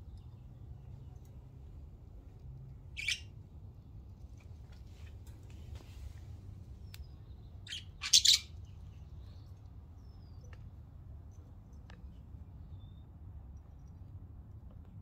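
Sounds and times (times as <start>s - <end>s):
birds chirping: 2.9s - 3.4s, 6.7s - 10.7s.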